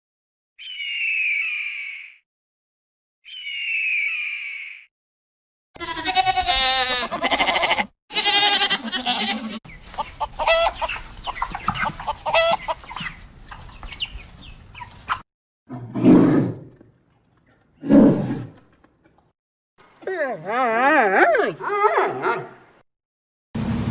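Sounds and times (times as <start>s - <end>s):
chicken clucking: 9.2s - 15.2s.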